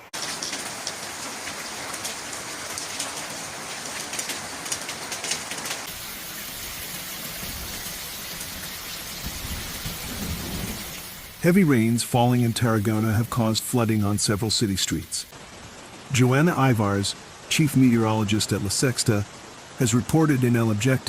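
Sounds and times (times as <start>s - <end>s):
heavy rain splashing: 0.0s - 21.0s.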